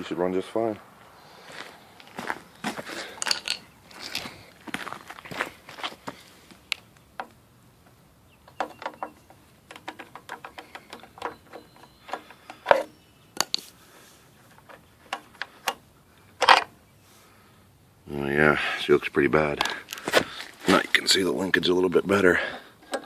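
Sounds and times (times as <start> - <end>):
hands handling things: 2.0 - 7.4, 19.6 - 21.1.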